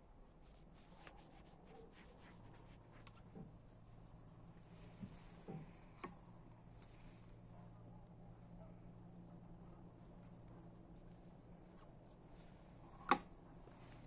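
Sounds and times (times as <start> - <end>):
light scratching: 0.4 - 6.1.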